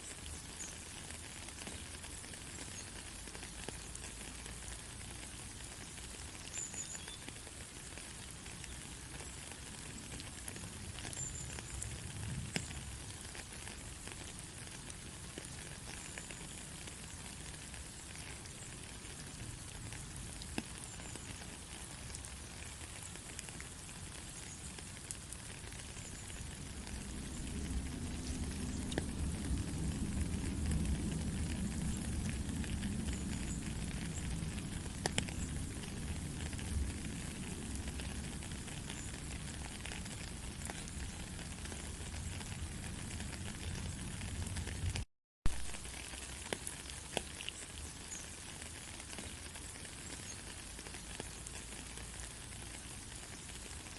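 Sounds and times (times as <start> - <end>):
steady rain hiss: 0.0 - 53.9
low rumble: 26.6 - 39.6.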